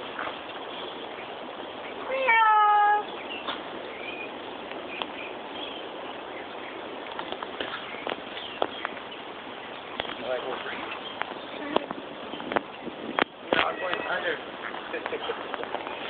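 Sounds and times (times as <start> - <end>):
cat meowing: 2.1 - 3.0, 13.6 - 14.2.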